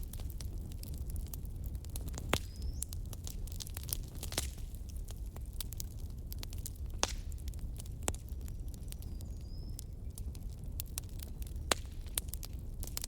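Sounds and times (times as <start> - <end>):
fire pops and snaps: 0.0 - 13.0
low fire rumble: 0.0 - 13.0
wood fire crackling: 0.0 - 13.0.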